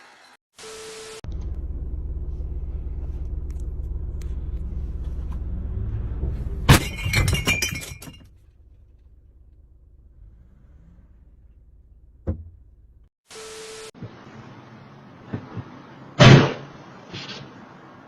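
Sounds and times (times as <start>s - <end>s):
low engine rumble: 1.3s - 13.1s
glass shattering and clinking: 6.7s - 8.3s.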